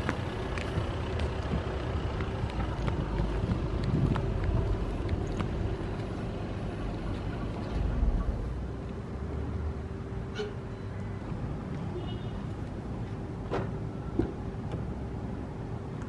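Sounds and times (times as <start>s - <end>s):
diesel car engine idling: 0.0s - 10.1s.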